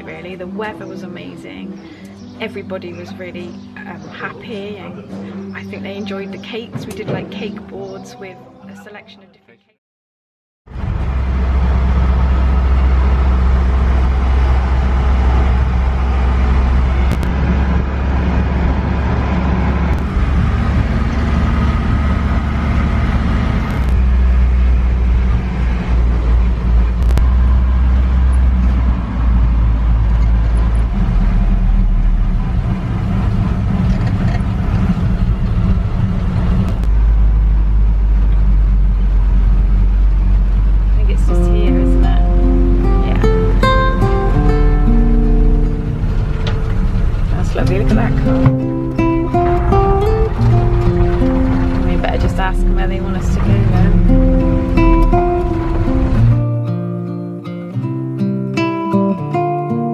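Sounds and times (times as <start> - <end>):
engine and road rumble: 10.7 - 57.4.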